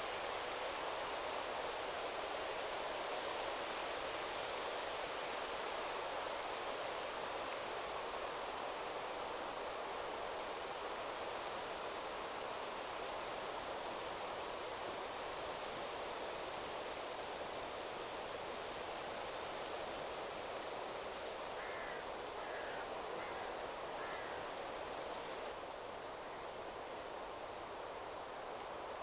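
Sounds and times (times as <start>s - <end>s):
wind rustling through trees: 0.0s - 29.0s.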